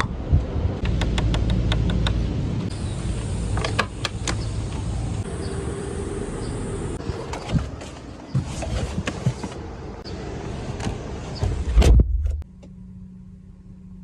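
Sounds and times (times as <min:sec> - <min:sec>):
car engine rumbling: 0:00.0 - 0:14.0
sharp clicks: 0:00.8 - 0:02.2.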